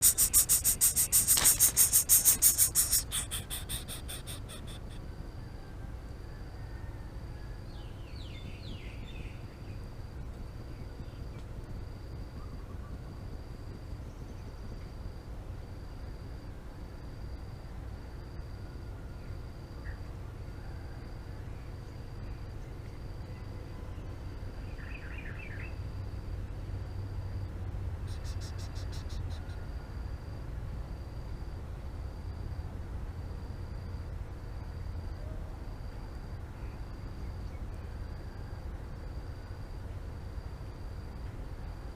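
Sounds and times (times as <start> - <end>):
insect chirring in rapid pulses: 0.0 - 5.1, 28.0 - 29.7
faint short insect calls: 0.0 - 32.7, 33.3 - 41.9
faint high insect tone: 0.0 - 41.9.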